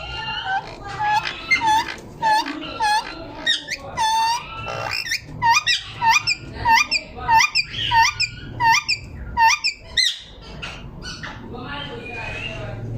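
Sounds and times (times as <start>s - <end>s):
parakeets calling: 0.0s - 12.8s.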